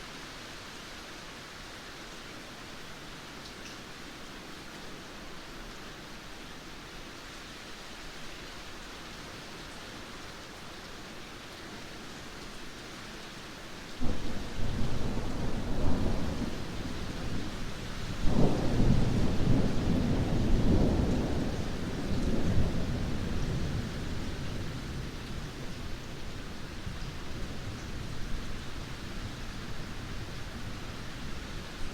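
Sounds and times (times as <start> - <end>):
heavy rain falling: 0.0 - 31.9
thunder clap and rumble: 14.0 - 24.0.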